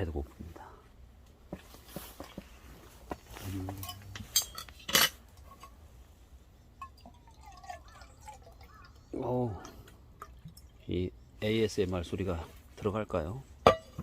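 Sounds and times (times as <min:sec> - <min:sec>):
cup clinking: 0:03.7 - 0:05.8, 0:06.6 - 0:09.0, 0:13.6 - 0:14.0
liquid trickling into a cup: 0:06.6 - 0:11.2.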